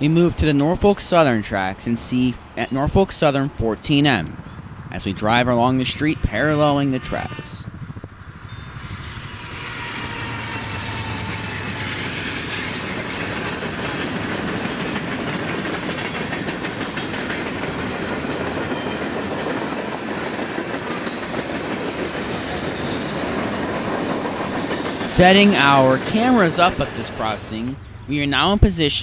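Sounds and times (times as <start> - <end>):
freight train rolling past: 0.0 - 28.9.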